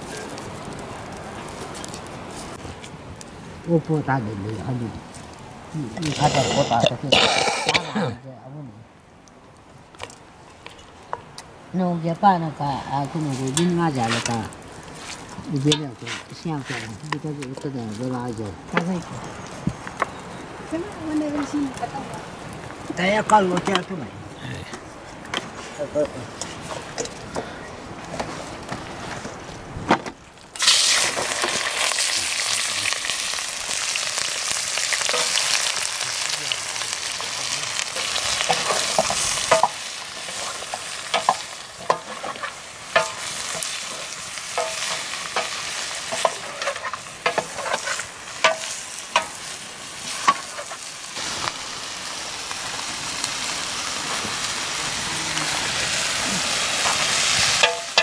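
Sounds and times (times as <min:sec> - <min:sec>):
metal ladle scraping pot: 0:06.0 - 0:07.0
chicken sizzling in hot oil: 0:30.6 - 0:58.0.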